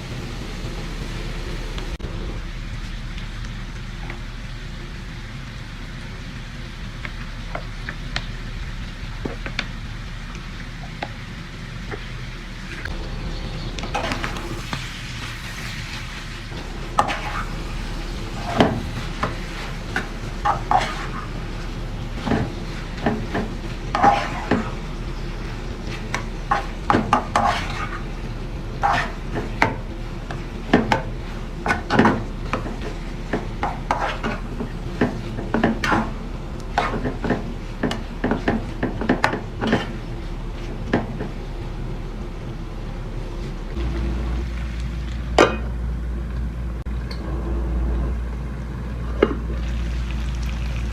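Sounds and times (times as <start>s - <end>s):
low steady hum: 0.0s - 50.9s
metal utensil stirring in a pan: 13.9s - 41.3s.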